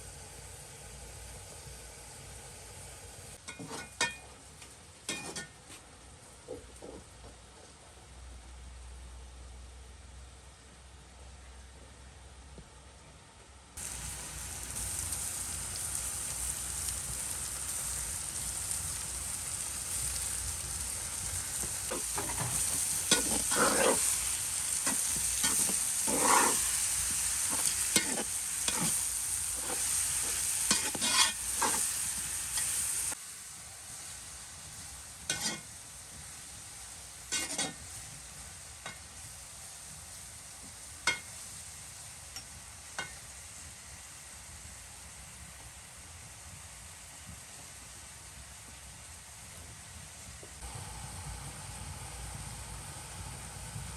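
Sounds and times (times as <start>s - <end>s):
food sizzling in a pan: 0.0s - 5.6s, 13.8s - 53.9s
utensil scraping a pan: 3.5s - 4.4s, 5.1s - 5.6s, 21.2s - 33.2s, 35.3s - 35.7s, 37.3s - 37.8s.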